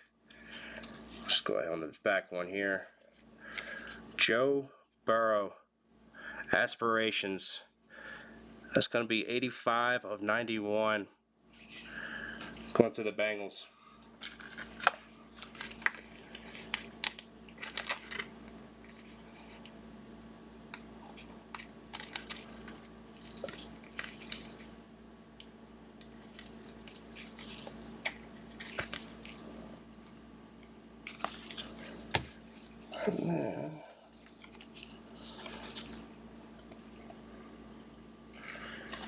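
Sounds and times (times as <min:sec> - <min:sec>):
cards rustling: 0:00.3 - 0:01.4, 0:11.6 - 0:12.8, 0:14.2 - 0:19.6, 0:20.7 - 0:24.8, 0:26.0 - 0:33.4, 0:34.1 - 0:37.2, 0:38.3 - 0:39.0
wrapper crinkling: 0:14.2 - 0:19.3, 0:21.5 - 0:24.8, 0:26.0 - 0:30.2, 0:31.0 - 0:33.0, 0:34.0 - 0:37.1, 0:38.3 - 0:39.0.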